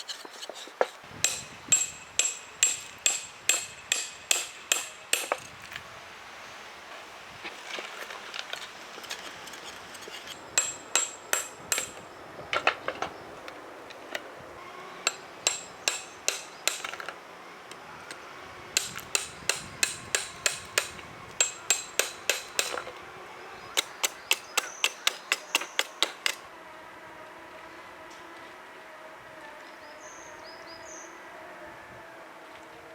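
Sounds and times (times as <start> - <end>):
hammer tapping: 18.8 - 22.8.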